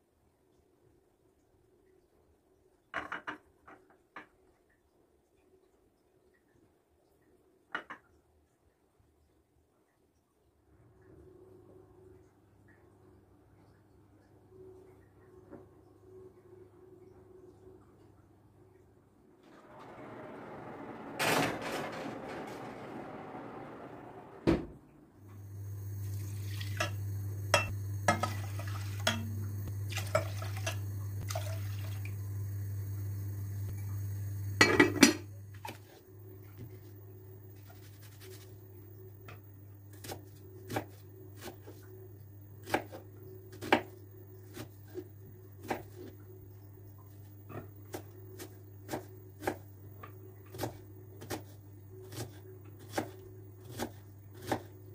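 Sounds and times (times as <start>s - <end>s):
steady low hum: 19.6s - 54.9s
dishes and cutlery clinking: 26.7s - 29.4s.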